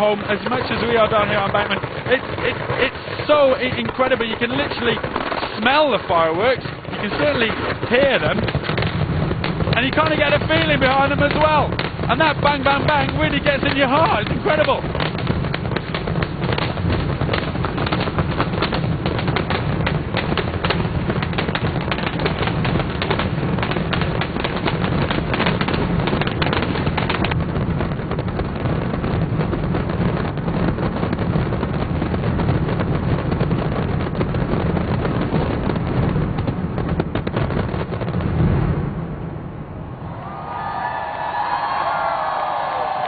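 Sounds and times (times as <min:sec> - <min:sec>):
fireworks bangs and crackles: 0:00.0 - 0:43.0.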